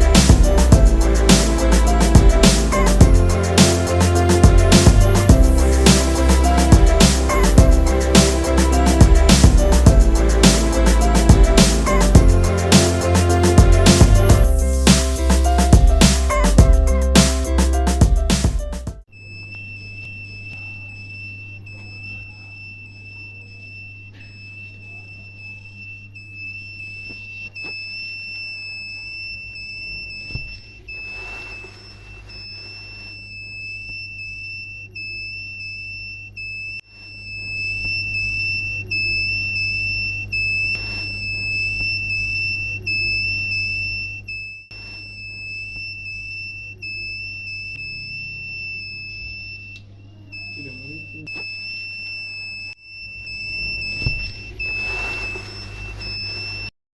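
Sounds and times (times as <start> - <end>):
high-pitched alarm buzzer: 0.0 - 17.2, 19.1 - 56.7.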